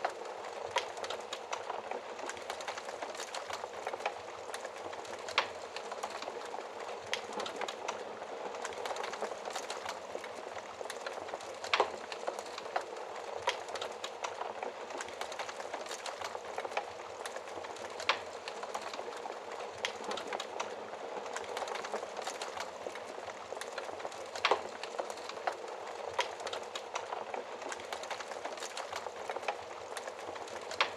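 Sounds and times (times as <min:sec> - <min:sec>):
fire crackling and popping: 0:00.0 - 0:30.9.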